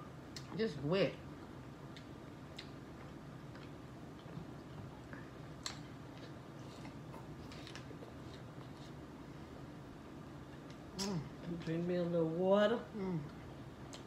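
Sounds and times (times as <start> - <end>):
lip smacks and chewing: 1.9 - 9.0.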